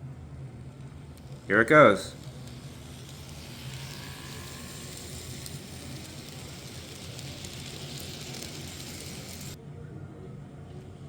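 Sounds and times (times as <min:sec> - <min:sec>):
noisy hiss: 0:00.0 - 0:09.6
model train motor humming: 0:01.0 - 0:09.6.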